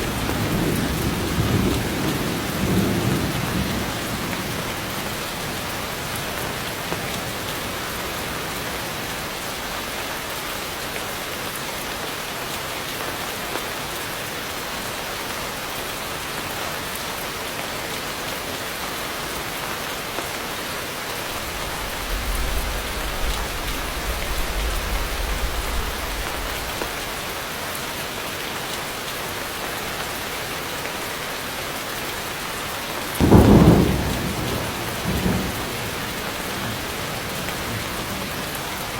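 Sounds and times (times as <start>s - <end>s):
heavy rain falling: 0.0s - 38.9s
low rumble: 21.3s - 27.2s.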